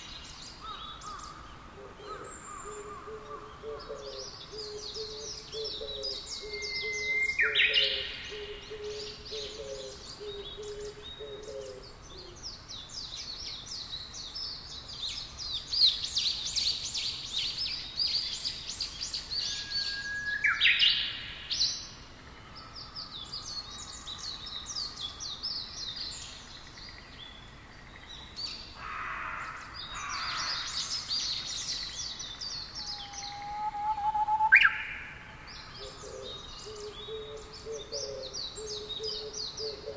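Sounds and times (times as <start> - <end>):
birds chirping and trilling: 0.0 - 39.9
rising whistled bird calls: 4.0 - 8.2, 19.4 - 21.2, 32.8 - 39.9.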